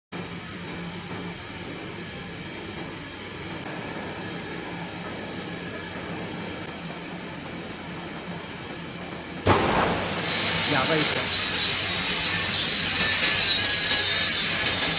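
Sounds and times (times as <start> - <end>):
cutting machine humming: 9.5 - 14.9.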